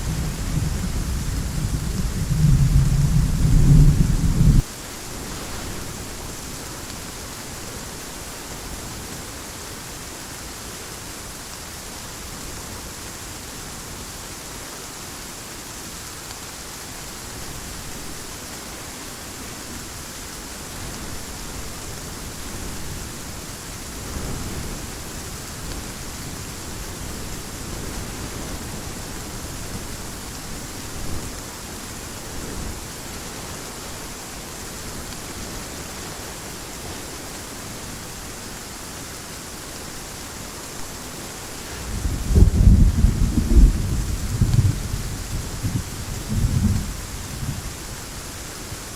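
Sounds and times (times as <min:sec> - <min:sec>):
distant thunder rumbling: 0:00.0 - 0:04.6, 0:41.6 - 0:47.7
heavy rain: 0:00.0 - 0:48.9.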